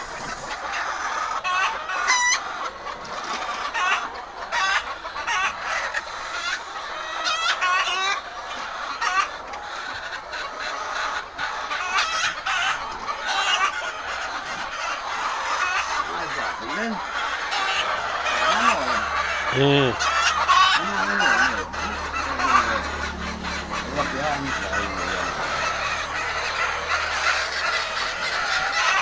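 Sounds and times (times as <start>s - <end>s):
hens clucking and squawking: 0.0s - 29.0s.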